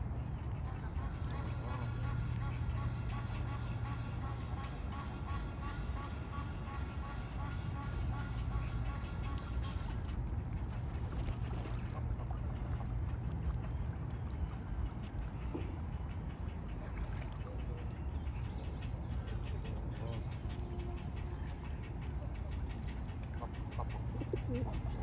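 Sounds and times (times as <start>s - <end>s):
waterbird calls: 11.0s - 25.0s.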